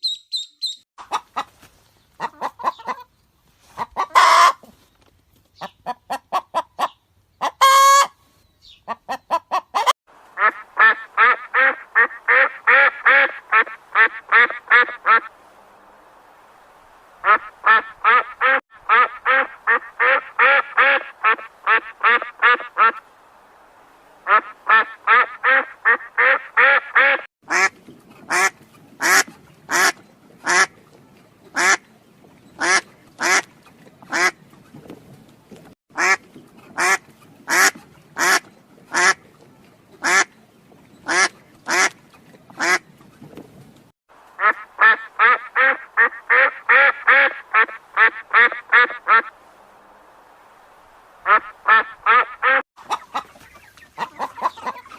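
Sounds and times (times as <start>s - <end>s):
ducks quacking: 2.2s - 4.7s, 5.6s - 8.2s, 8.8s - 15.3s, 17.2s - 23.0s, 24.2s - 30.8s, 31.5s - 31.9s, 32.5s - 34.4s, 35.9s - 39.4s, 40.0s - 40.4s, 41.0s - 42.9s, 44.4s - 49.3s, 51.2s - 54.9s.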